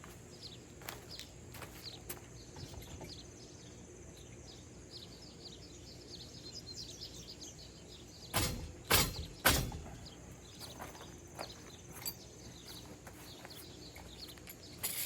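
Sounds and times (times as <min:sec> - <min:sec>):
birds chirping: 0:00.0 - 0:15.0
loud knocks of rack parts: 0:08.3 - 0:10.1.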